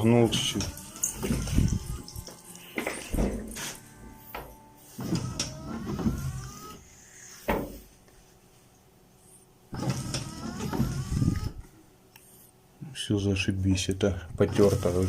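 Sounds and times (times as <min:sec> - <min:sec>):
wiper blades rubbing on glass: 0:00.0 - 0:02.6, 0:04.9 - 0:06.9, 0:09.7 - 0:11.6, 0:14.4 - 0:15.0
wiper motor whining: 0:00.0 - 0:06.9, 0:09.7 - 0:11.7, 0:14.3 - 0:15.0.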